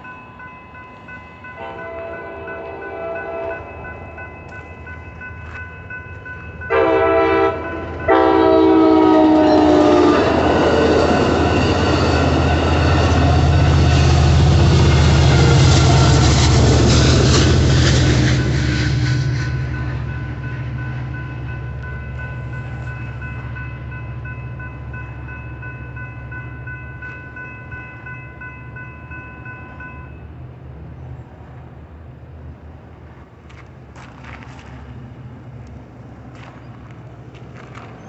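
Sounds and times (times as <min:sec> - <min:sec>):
crossing warning bell ringing: 0:00.0 - 0:30.6
train wheels clattering and rumbling: 0:10.2 - 0:21.5, 0:33.0 - 0:38.0.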